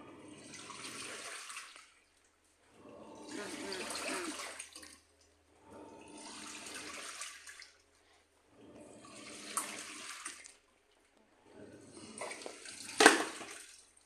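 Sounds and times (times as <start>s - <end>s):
washing machine churning water: 0.0s - 2.1s, 2.7s - 7.9s, 8.5s - 10.6s, 11.4s - 14.0s.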